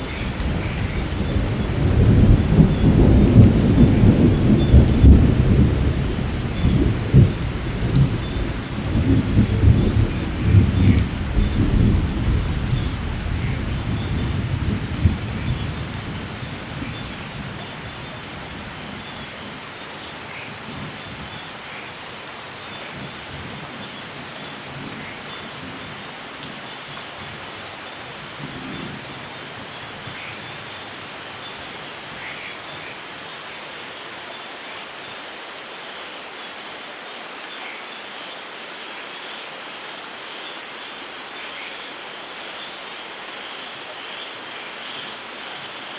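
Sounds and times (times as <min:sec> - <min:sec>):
steady rain: 0:00.0 - 0:45.9
thunder rumble: 0:00.1 - 0:16.3.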